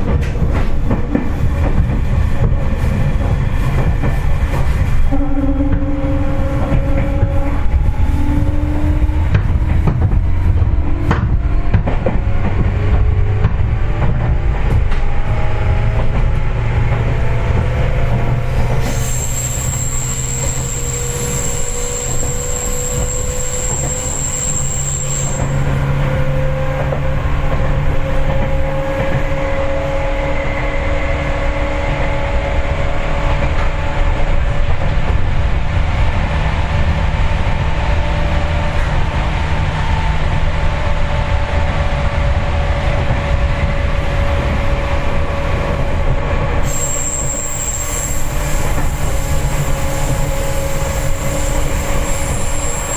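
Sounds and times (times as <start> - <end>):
train wheels rumbling on rails: 0.0 - 52.9
train motor whine: 5.1 - 32.6, 41.9 - 52.9
high-pitched wheel squeal: 18.5 - 26.8, 46.6 - 52.9.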